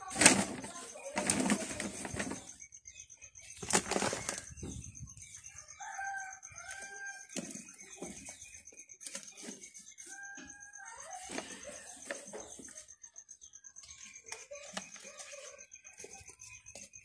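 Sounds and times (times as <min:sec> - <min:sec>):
rustling: 0:00.0 - 0:02.6, 0:03.6 - 0:04.5.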